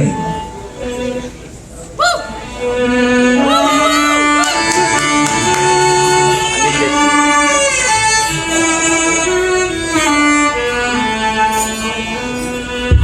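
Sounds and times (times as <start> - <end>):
band playing instrumental: 3.4 - 13.0.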